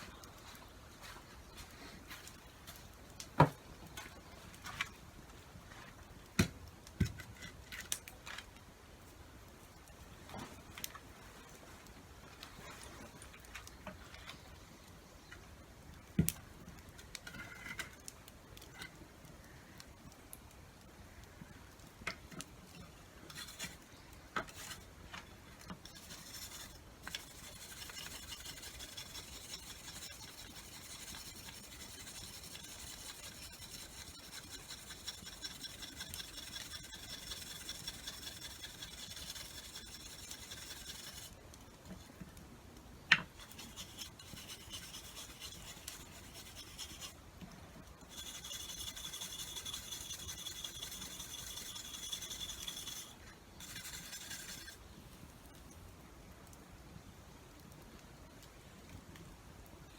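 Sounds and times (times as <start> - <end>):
blade being sharpened: 25.9 - 41.3, 43.4 - 47.2, 48.1 - 54.8.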